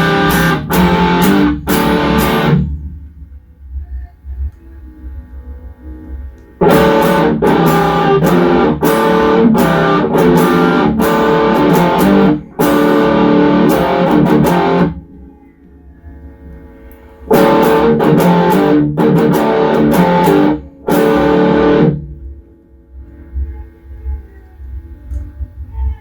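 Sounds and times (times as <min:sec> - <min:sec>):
distorted electric guitar: 0:00.0 - 0:03.1, 0:06.1 - 0:22.5
amp hum: 0:00.0 - 0:26.0.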